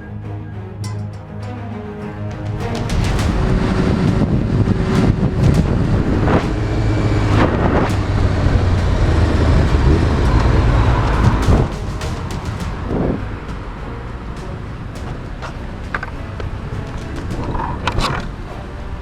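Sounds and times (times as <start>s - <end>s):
wind noise on microphone: 2.2s - 19.0s
sharp knocks: 2.3s - 13.8s
vehicle engine running: 2.7s - 13.8s.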